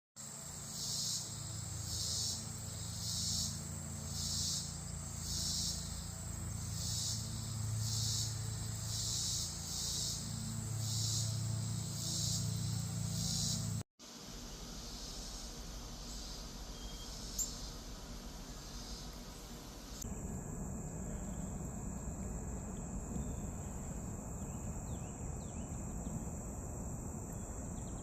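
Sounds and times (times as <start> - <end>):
insect rasping call: 0.2 - 13.8, 14.7 - 20.0
low hum: 0.4 - 28.0.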